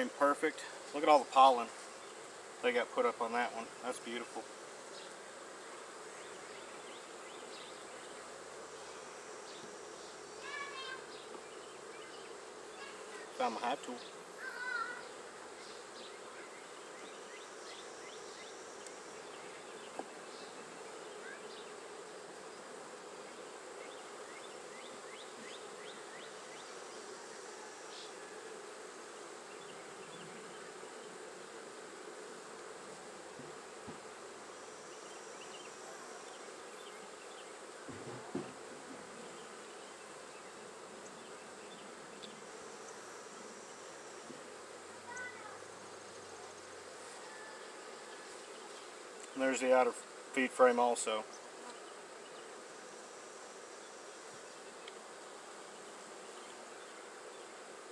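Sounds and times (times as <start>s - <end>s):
bees buzzing: 0.0s - 57.9s
brief knock: 37.9s - 38.6s.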